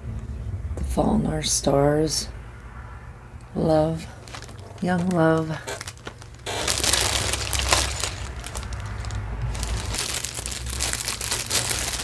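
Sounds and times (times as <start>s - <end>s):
plastic packaging crinkling: 4.1s - 12.0s.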